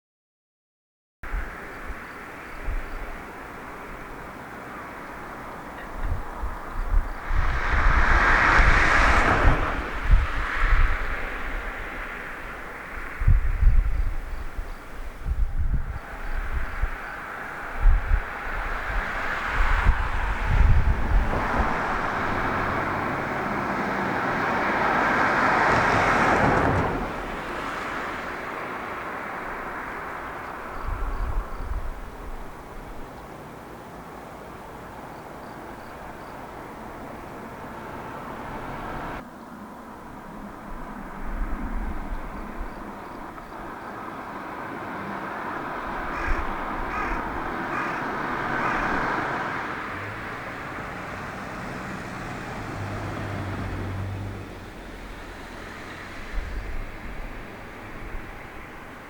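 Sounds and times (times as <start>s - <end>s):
distant road traffic hum: 1.2s - 59.0s
passing vehicle rushing: 3.2s - 32.7s, 35.8s - 39.2s, 39.9s - 59.0s
crow cawing: 46.0s - 49.5s.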